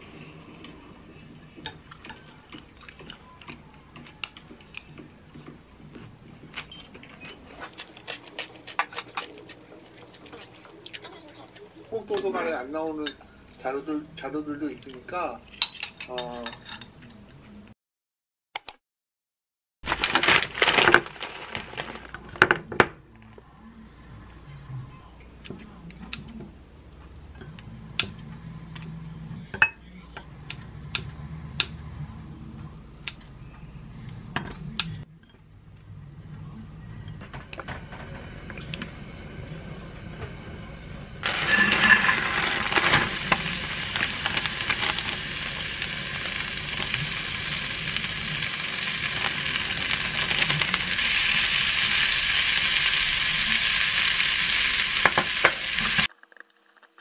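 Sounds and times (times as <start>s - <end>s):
rice sizzling in frying pan: 41.2s - 57.0s.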